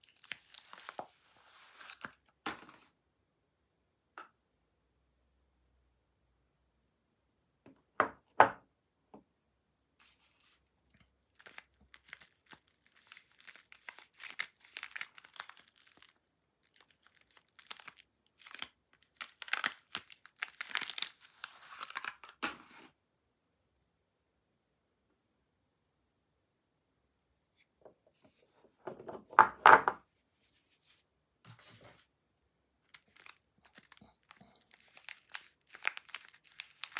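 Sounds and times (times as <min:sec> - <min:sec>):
packaging tearing and crinkling: 0:00.1 - 0:02.8, 0:11.3 - 0:22.8, 0:32.9 - 0:36.9.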